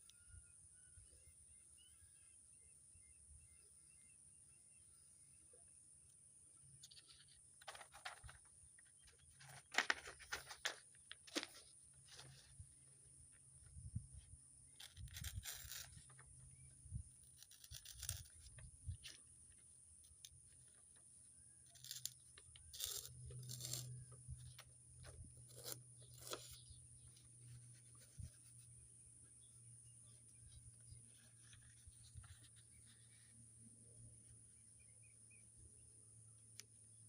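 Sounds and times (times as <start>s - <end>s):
paper rustling and crinkling: 6.8s - 12.7s, 30.5s - 33.2s.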